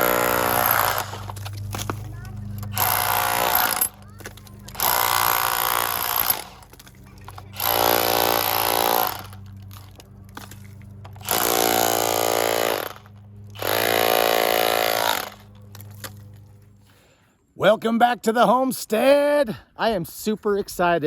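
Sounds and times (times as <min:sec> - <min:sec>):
power chipping hammer knocking plaster: 0:00.0 - 0:06.8, 0:07.5 - 0:09.3, 0:11.2 - 0:15.4.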